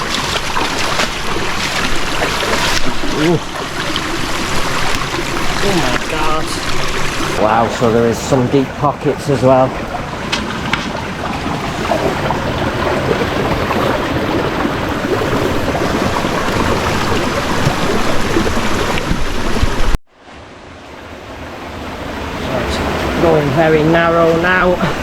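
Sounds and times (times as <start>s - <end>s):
water splashing from wading: 0.0s - 20.0s
rush of water: 0.0s - 25.0s.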